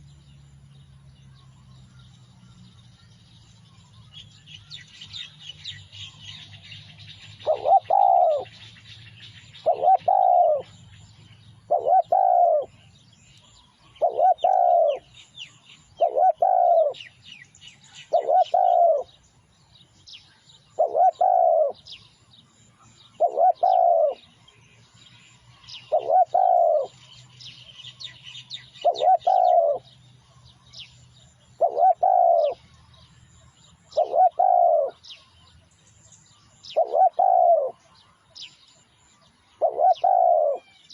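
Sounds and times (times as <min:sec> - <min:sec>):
small birds chirping: 0:00.0 - 0:40.9
dove cooing: 0:07.4 - 0:08.8, 0:09.4 - 0:11.0, 0:11.6 - 0:12.8, 0:13.8 - 0:15.2, 0:15.8 - 0:17.2, 0:18.0 - 0:19.2, 0:20.7 - 0:21.9, 0:23.1 - 0:24.3, 0:25.8 - 0:27.1, 0:28.7 - 0:29.9, 0:31.6 - 0:32.7, 0:33.9 - 0:35.0, 0:36.7 - 0:37.8, 0:39.6 - 0:40.8.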